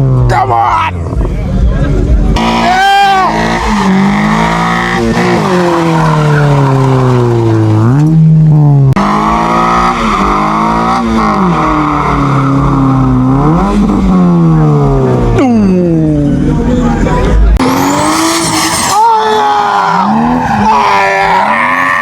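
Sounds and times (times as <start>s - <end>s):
car engine revving hard: 2.3s - 15.4s, 17.6s - 22.0s.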